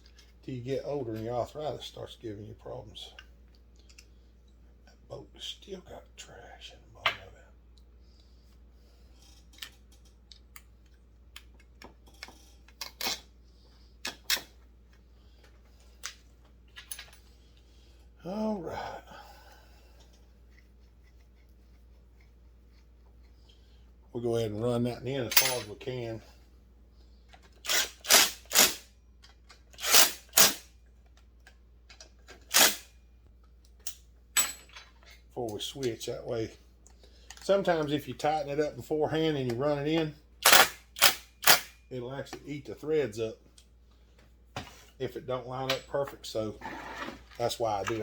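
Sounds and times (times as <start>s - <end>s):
ratchet wrench clicking: 27.6s - 28.8s, 29.8s - 30.6s, 32.5s - 32.8s.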